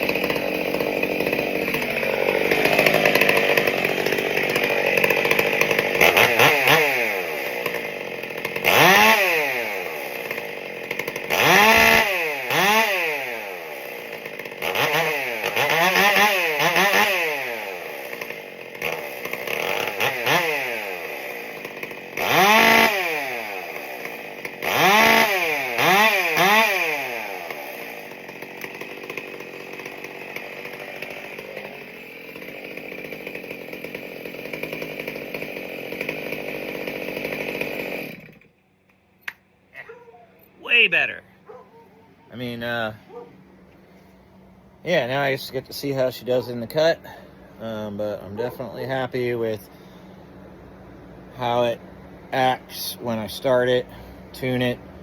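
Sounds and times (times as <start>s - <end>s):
chainsaw revving: 0.0s - 38.5s, 44.9s - 50.3s.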